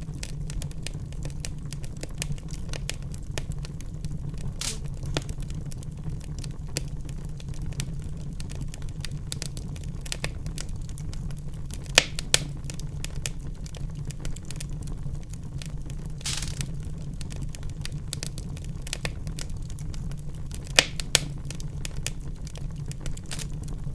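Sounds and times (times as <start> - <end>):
fire crackling and popping: 0.0 - 23.9
fire rumbling: 0.0 - 23.9.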